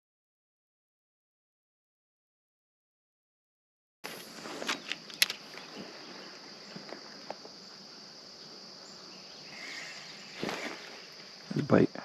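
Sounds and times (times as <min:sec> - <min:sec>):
crickets trilling: 0:04.0 - 0:12.0
light clicks: 0:04.6 - 0:05.7.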